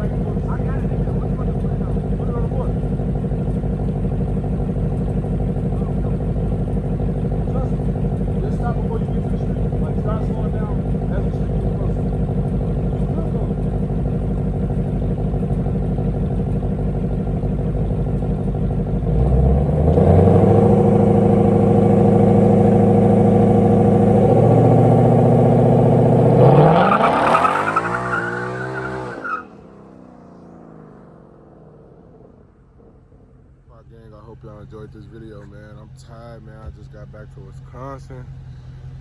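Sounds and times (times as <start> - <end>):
car engine revving: 0.0 - 39.0.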